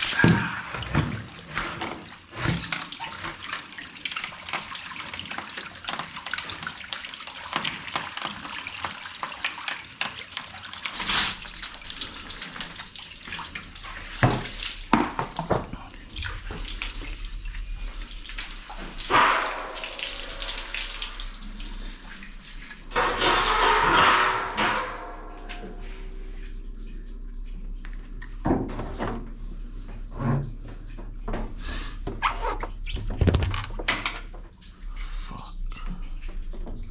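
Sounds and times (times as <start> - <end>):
tap water splashing: 0.0 - 29.3.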